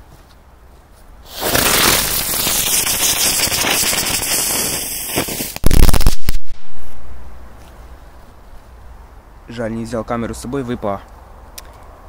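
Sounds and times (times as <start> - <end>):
fireworks crackling hiss: 1.2 - 7.0
loud firework bangs: 1.3 - 7.0.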